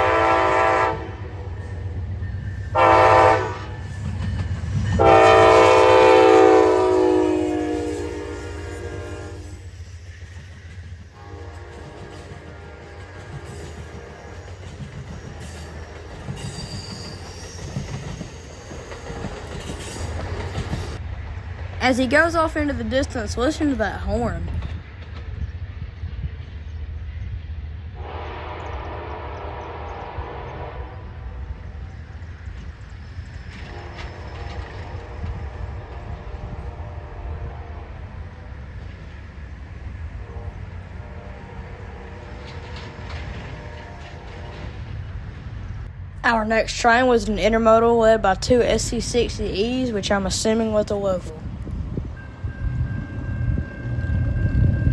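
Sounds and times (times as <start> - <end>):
train wheels rumbling on rails: 0.0 - 54.9
high wheel squeal: 7.6 - 11.2, 13.5 - 21.0.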